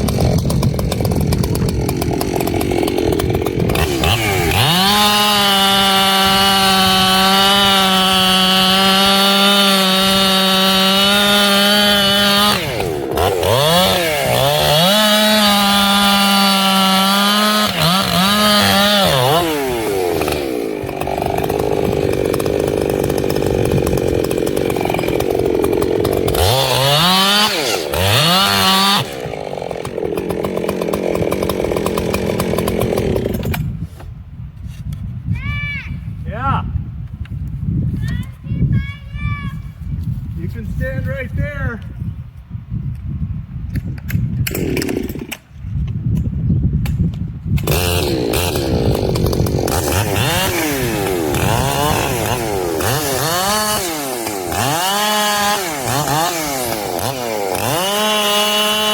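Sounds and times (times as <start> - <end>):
chainsaw running at full throttle: 0.0 - 33.8, 44.5 - 45.5, 47.6 - 58.9.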